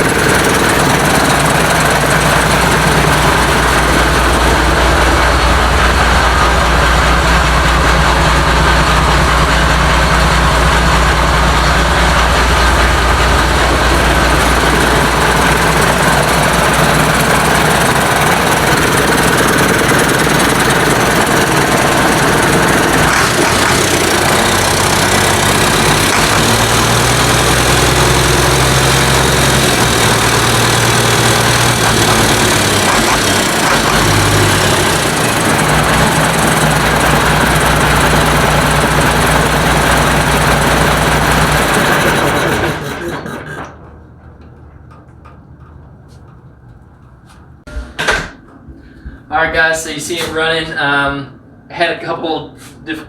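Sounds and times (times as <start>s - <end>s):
diesel engine idling: 0.0s - 45.2s.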